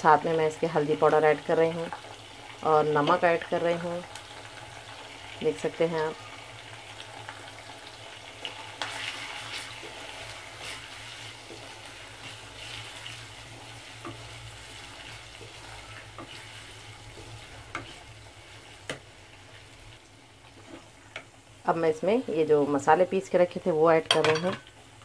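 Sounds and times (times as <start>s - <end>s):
food sizzling in oil: 0.0s - 25.0s
spatula tapping pan: 13.5s - 14.4s, 17.1s - 18.1s, 18.8s - 19.1s.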